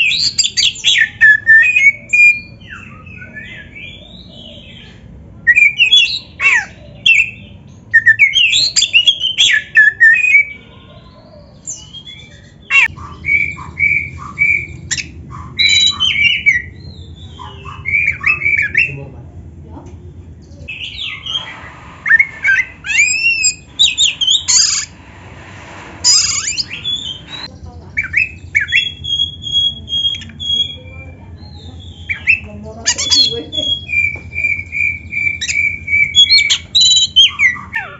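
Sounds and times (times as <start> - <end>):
songbird singing: 0.0 - 25.0, 26.0 - 37.9
low steady hum: 12.2 - 37.9.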